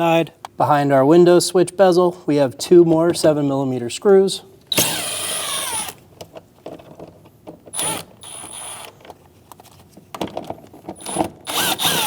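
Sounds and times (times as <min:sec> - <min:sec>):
power driver whining: 0:04.7 - 0:06.0, 0:11.0 - 0:12.0.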